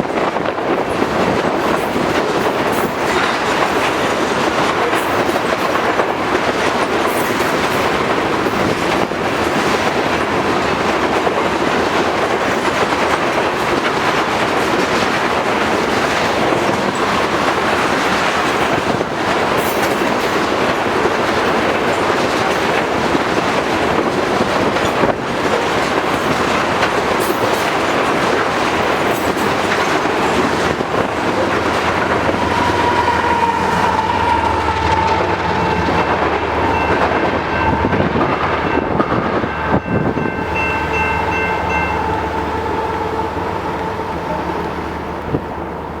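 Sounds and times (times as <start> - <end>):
freight train rolling past: 0.0 - 46.0
wheels clacking over rail joints: 0.0 - 46.0.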